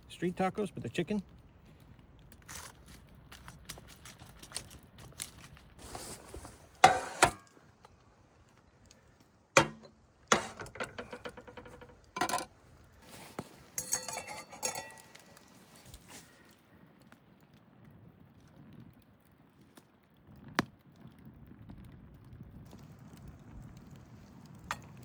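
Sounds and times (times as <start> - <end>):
metal cookware clinks and scrapes: 6.8 - 7.4, 9.6 - 12.5, 13.2 - 15.7
ringing metallic clatter: 13.8 - 15.4.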